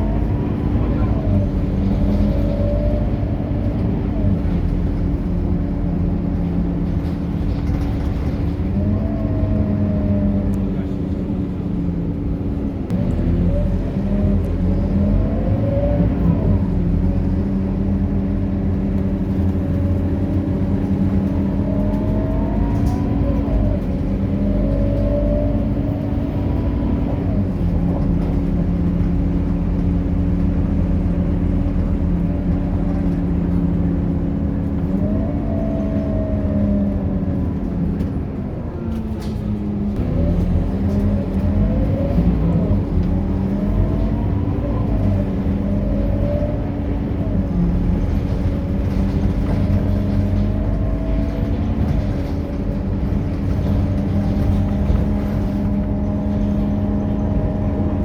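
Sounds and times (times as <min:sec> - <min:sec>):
bus engine running: 0:00.0 - 0:58.0.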